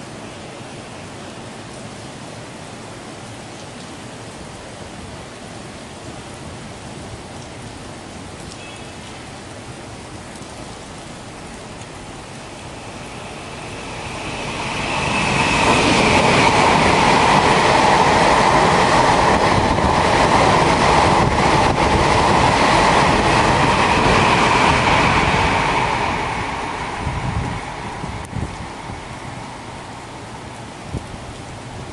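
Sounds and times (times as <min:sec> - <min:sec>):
train passing at speed: 0:09.0 - 0:31.9
wheels clacking on rails: 0:10.3 - 0:29.6.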